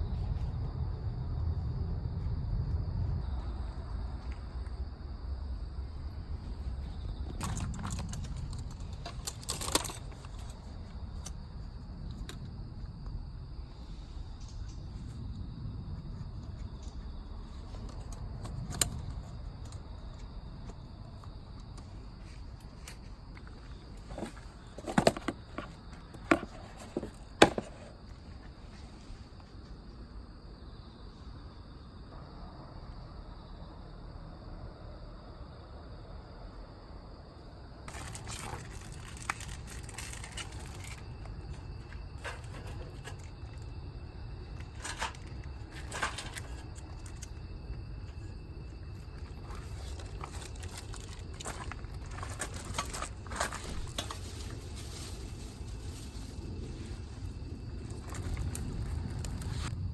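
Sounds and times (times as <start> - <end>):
faint high insect trill: 0.0 - 59.9
small hard objects clinking: 37.9 - 43.7, 49.1 - 56.2.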